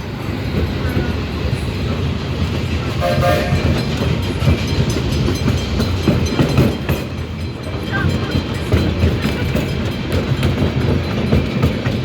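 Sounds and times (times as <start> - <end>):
steam train rumbling: 0.0 - 12.0
train knocks: 0.2 - 12.0
train whistle toot: 3.0 - 3.8.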